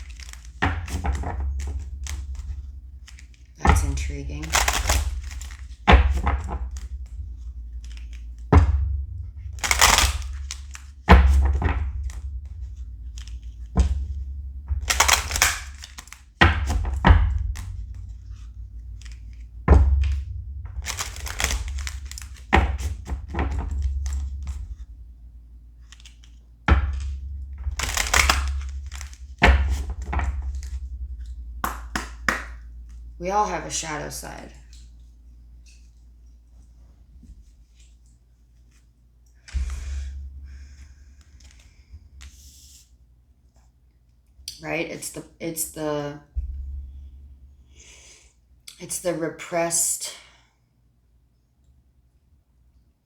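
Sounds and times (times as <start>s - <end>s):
cards rustling when shuffled: 0.0s - 6.9s, 9.5s - 11.7s, 14.7s - 19.4s, 20.8s - 24.8s, 25.8s - 32.6s
low thump: 0.0s - 35.9s, 39.5s - 42.4s, 46.3s - 47.8s.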